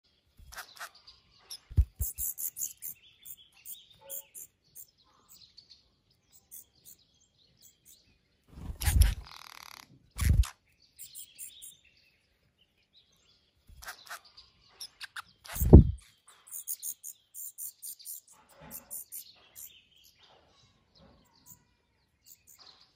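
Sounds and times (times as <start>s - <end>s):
high-pitched bird chirps: 0.4s - 5.4s, 6.3s - 7.0s, 8.6s - 11.8s, 13.7s - 20.2s
loud dull thumps: 15.6s - 16.0s.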